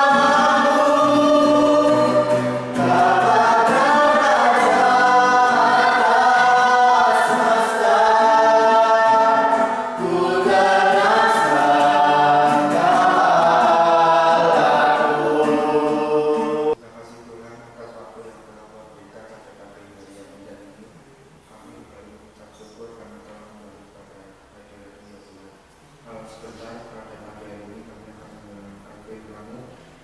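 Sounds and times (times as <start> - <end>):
group singing worship song: 0.0 - 16.8.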